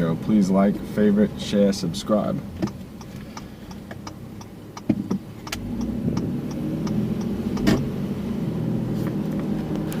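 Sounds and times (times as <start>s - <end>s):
car engine hum: 0.0s - 10.0s
road noise: 0.0s - 10.0s
regular ticking: 2.0s - 8.1s.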